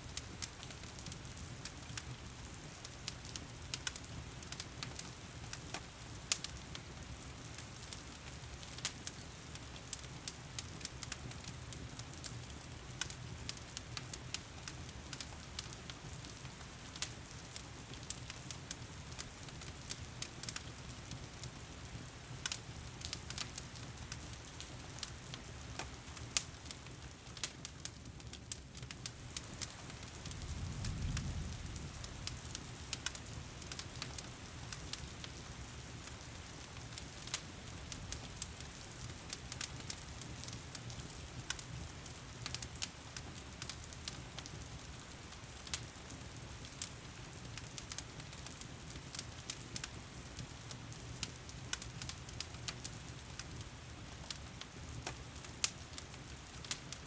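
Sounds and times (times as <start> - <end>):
wood fire crackling and popping: 0.1 - 57.0.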